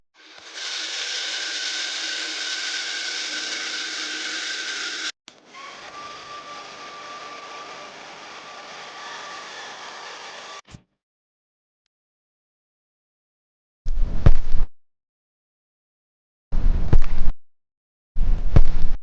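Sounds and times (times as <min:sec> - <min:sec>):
small electric motor whirring: 0:00.2 - 0:10.6.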